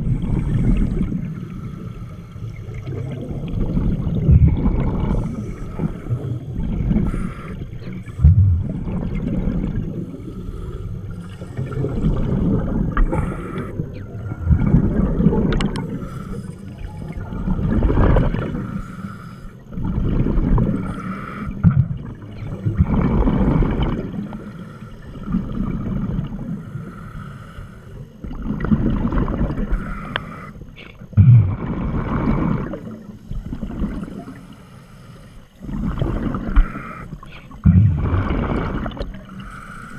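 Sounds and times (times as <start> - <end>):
bubbles gurgling underwater: 0.0 - 1.6, 2.4 - 16.1, 16.7 - 18.7, 19.7 - 24.4, 25.1 - 26.6, 28.2 - 29.9, 31.1 - 34.4, 35.6 - 39.6
diver breathing through regulator: 4.5 - 17.1, 18.4 - 19.7, 20.6 - 21.6, 26.5 - 28.2, 29.6 - 39.9.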